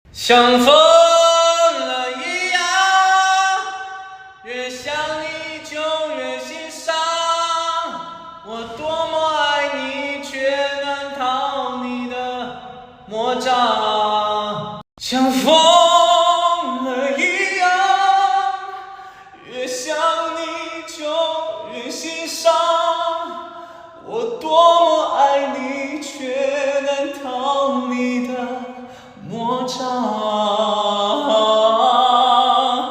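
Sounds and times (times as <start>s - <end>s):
short breath: 18.8s - 19.4s, 23.4s - 24.0s, 28.8s - 29.2s.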